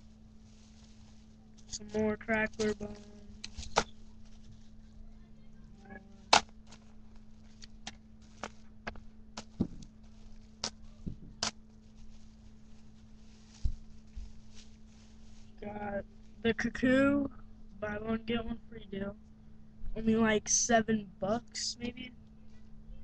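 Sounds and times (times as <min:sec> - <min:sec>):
low electrical hum: 0:00.0 - 0:23.0
packages clicking and knocking: 0:06.3 - 0:11.6.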